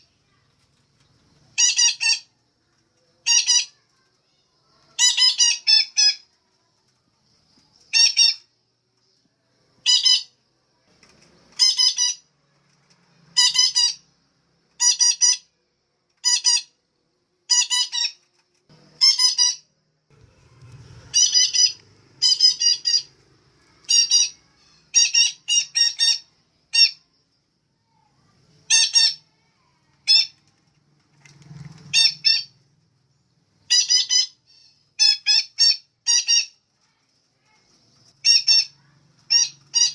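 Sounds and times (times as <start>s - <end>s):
parakeet squawking: 1.6s - 2.3s, 3.2s - 3.8s, 5.0s - 6.2s, 9.8s - 10.3s, 11.6s - 12.3s, 13.4s - 14.1s, 14.8s - 15.5s, 16.2s - 16.7s, 17.5s - 18.2s, 19.0s - 19.6s, 21.0s - 27.0s, 28.6s - 29.3s, 31.9s - 32.5s, 33.7s - 36.6s, 38.2s - 39.9s.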